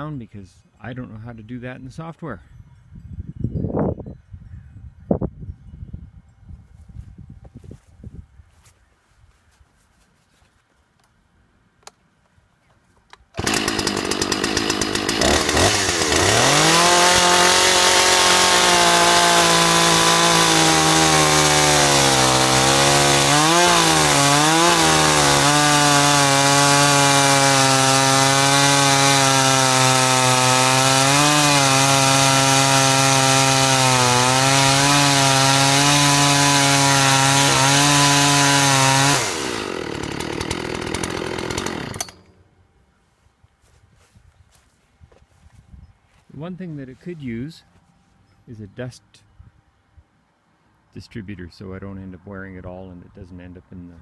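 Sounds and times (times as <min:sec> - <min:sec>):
chainsaw cutting through a log: 0:13.4 - 0:42.4.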